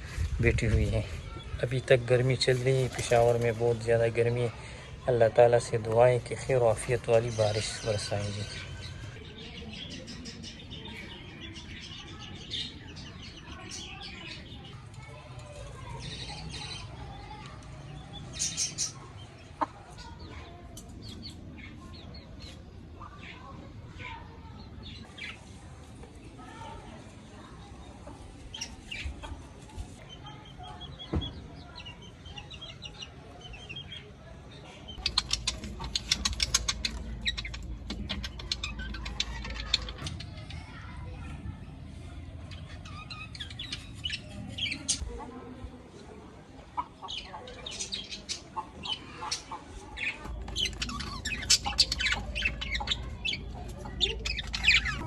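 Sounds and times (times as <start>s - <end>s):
small birds chirping: 0.0s - 55.0s
wings flapping: 2.5s - 3.8s, 35.0s - 40.1s.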